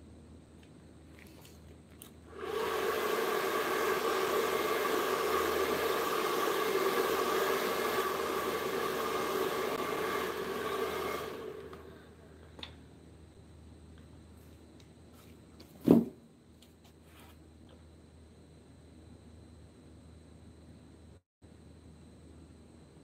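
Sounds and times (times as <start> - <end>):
electric blower running: 2.3 - 12.7.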